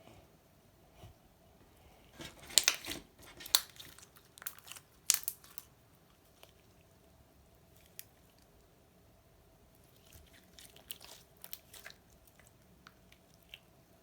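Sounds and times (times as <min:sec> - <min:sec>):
slime crackling and popping: 0:02.4 - 0:05.7.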